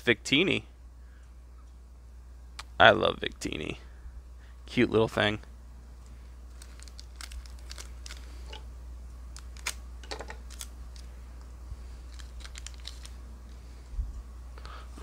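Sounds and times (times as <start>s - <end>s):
low electrical hum: 0.0s - 15.0s
foil wrapper crinkling and tearing: 6.5s - 8.4s, 9.3s - 9.8s, 10.4s - 11.1s, 12.1s - 13.2s
cards clicking: 12.1s - 13.2s.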